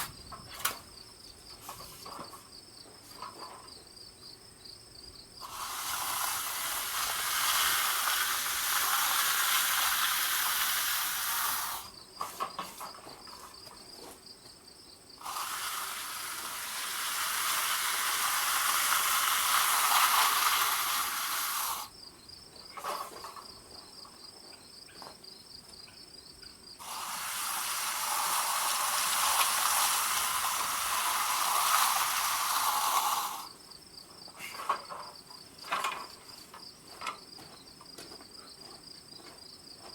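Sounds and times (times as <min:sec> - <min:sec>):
crickets chirping: 0:00.0 - 0:39.9
spraying hiss: 0:05.4 - 0:11.9, 0:15.2 - 0:21.9, 0:26.8 - 0:33.6.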